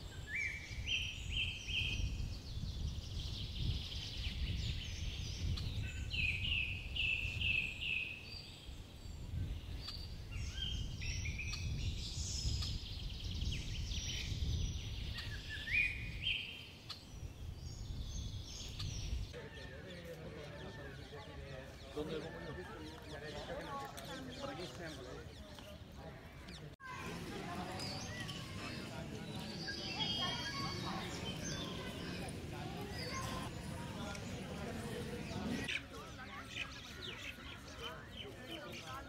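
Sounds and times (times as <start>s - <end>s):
birds calling short sharp notes: 9.2s - 39.0s.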